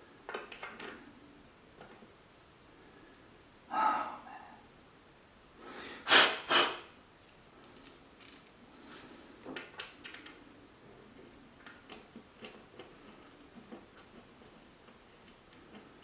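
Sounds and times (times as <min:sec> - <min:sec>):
loud short hissing puffs: 0:05.6 - 0:06.9.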